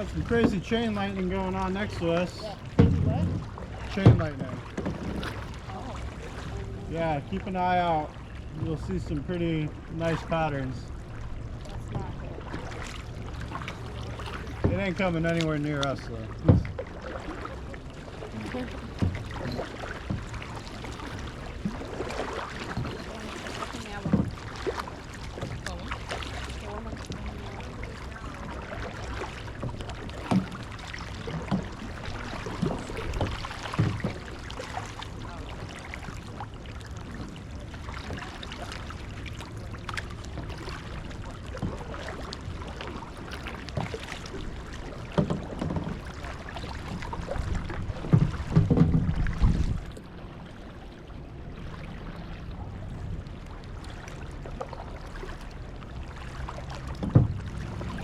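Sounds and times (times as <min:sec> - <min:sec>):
water swishing along kayak hull: 0:00.0 - 0:58.0
wind rumble on microphone: 0:02.6 - 0:07.4, 0:40.4 - 0:54.0
knocks on kayak: 0:02.7 - 0:05.5, 0:16.4 - 0:16.8, 0:24.0 - 0:24.4, 0:32.5 - 0:34.3, 0:45.1 - 0:46.1, 0:46.9 - 0:49.8, 0:56.9 - 0:58.0.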